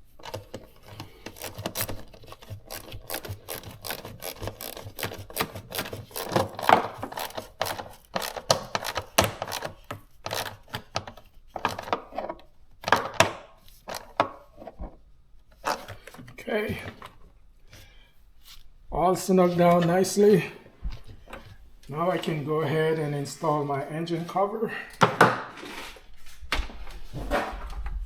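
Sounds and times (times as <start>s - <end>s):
hands working on plastic duct: 0.0s - 18.9s.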